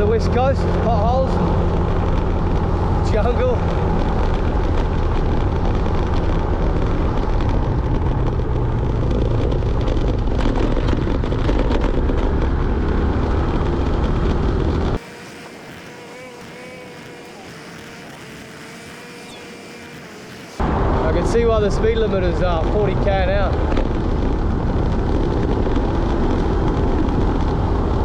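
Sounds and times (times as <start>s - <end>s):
wind buffeting microphone: 0.0s - 15.0s, 20.6s - 28.0s
scooter engine running: 0.0s - 20.7s
road noise: 0.0s - 28.0s.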